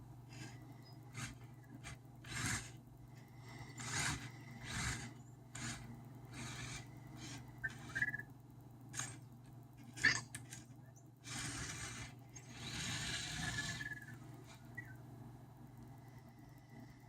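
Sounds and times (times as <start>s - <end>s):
small motors whirring: 0.3s - 8.3s, 8.9s - 15.0s
electronic chirp: 7.6s - 8.3s.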